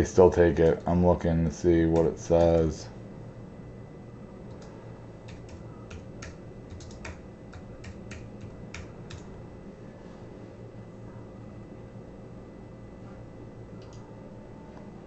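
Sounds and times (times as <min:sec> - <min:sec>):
computer keyboard keystrokes: 0:01.9 - 0:02.7, 0:04.5 - 0:09.3.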